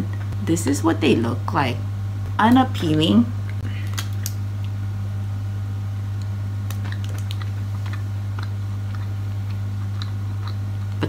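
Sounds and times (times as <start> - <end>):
low electrical hum: 0.0 - 11.0
mouth clicks chewing: 6.7 - 11.0.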